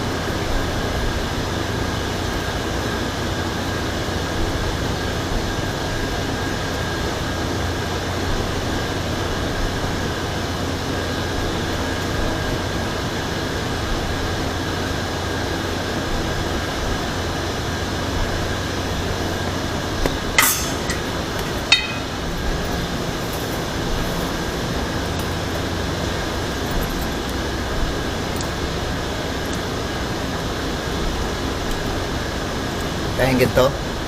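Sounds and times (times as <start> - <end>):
steady background hum: 0.0 - 34.0
sharp metallic clinks: 20.4 - 22.8.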